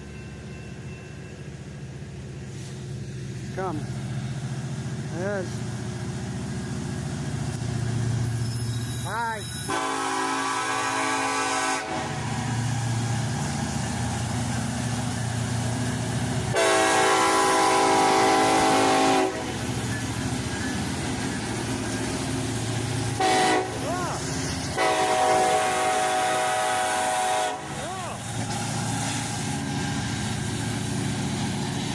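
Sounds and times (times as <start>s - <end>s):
passing train rumble: 0.0s - 31.9s
locomotive air horn blasts: 9.7s - 12.3s, 16.5s - 19.6s, 23.2s - 27.8s.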